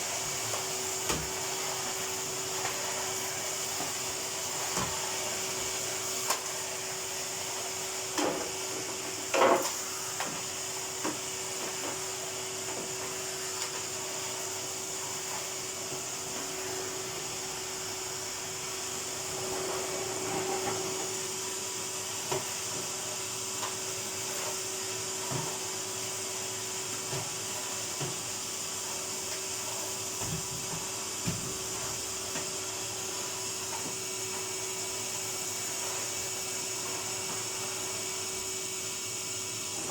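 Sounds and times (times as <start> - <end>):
vacuum cleaner running: 0.0 - 39.9
vacuum cleaner knocks and bumps: 30.2 - 31.6.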